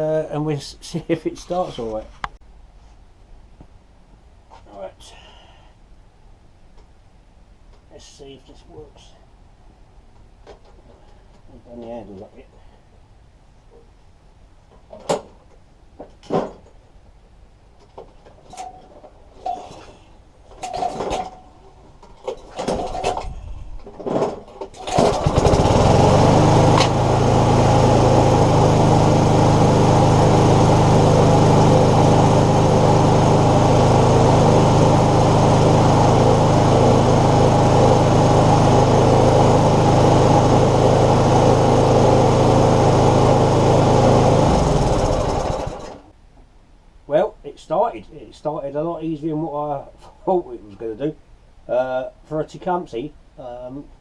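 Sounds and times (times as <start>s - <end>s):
lawn mower engine running: 24.7s - 46.1s.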